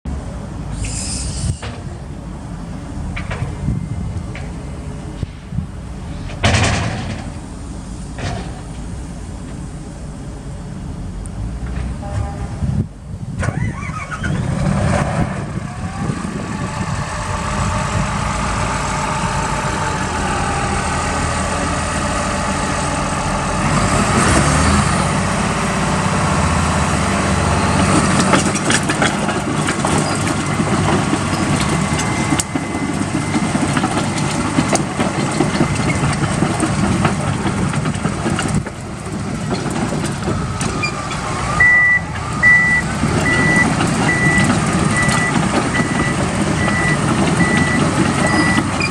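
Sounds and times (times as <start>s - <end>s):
diesel engine running: 0.1s - 48.9s
reversing alarm beeping: 30.8s - 34.8s, 40.8s - 48.9s.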